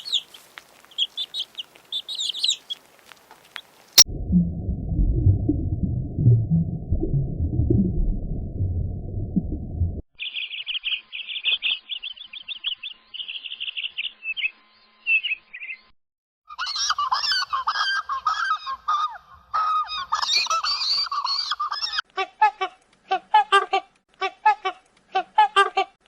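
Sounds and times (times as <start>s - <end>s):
flock of birds calling: 0.0s - 2.8s, 16.6s - 22.0s
birds chirping: 0.0s - 2.9s, 10.2s - 15.9s.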